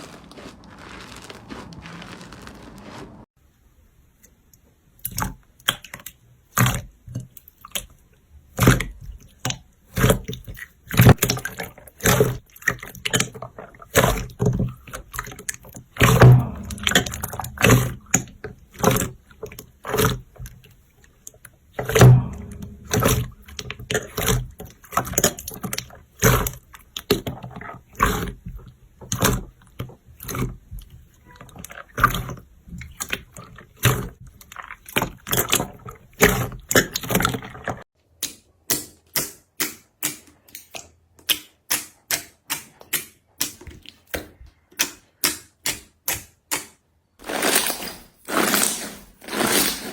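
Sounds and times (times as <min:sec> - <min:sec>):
slime squeezed by hand: 0:00.0 - 0:03.3.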